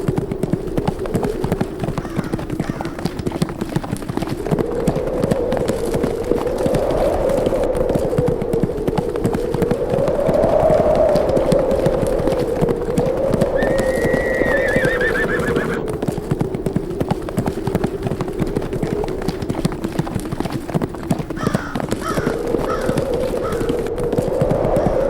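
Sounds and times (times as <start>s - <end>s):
horses galloping hoofbeats: 0.0s - 25.0s
wind howling: 0.0s - 25.0s
horse whinnying: 13.6s - 15.9s.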